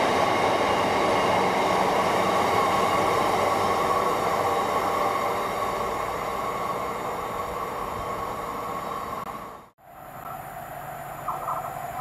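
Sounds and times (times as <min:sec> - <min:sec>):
train noise: 0:00.0 - 0:12.0.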